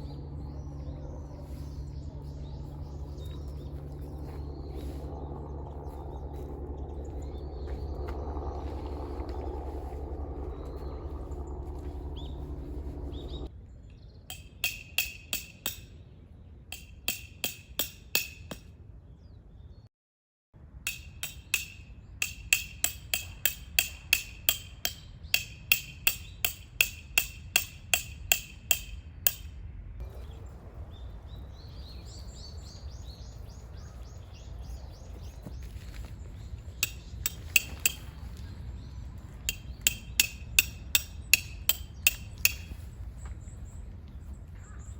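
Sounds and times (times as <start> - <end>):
low rumble: 0.0 - 13.8.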